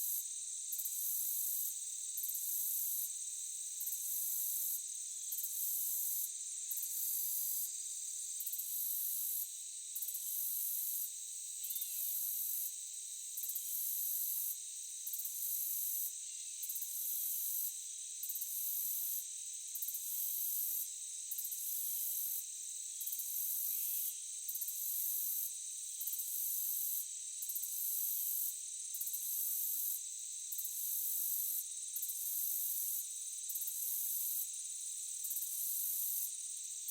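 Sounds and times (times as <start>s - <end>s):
crickets trilling: 11.5s - 12.8s.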